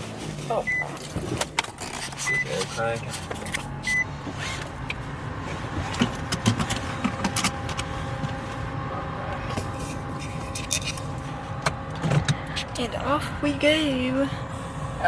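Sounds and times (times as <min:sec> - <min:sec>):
car engine idling: 0:00.0 - 0:15.0
clicks and knocks inside car: 0:05.7 - 0:08.4.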